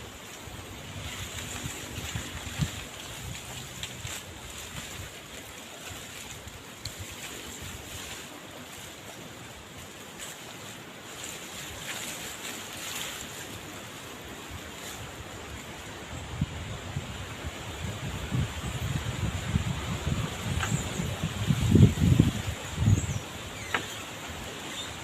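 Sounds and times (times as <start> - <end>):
wind rushing: 16.1 - 23.2.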